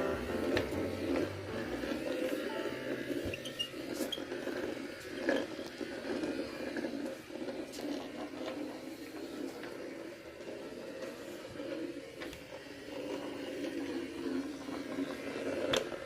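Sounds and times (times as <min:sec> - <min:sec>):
robot vacuum cleaner running: 0:00.0 - 0:16.0.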